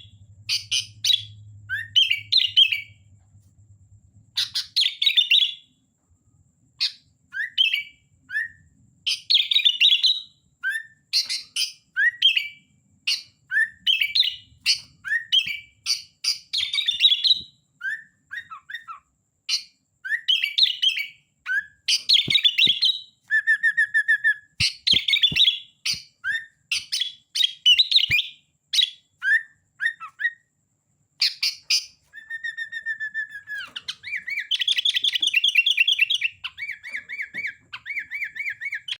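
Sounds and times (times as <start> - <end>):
bird chattering song: 0.0 - 3.0, 4.4 - 5.6, 6.8 - 23.1, 24.6 - 30.4, 31.2 - 38.9
bird steady whistle: 0.0 - 3.1, 4.3 - 5.8, 6.8 - 30.6, 31.2 - 38.9.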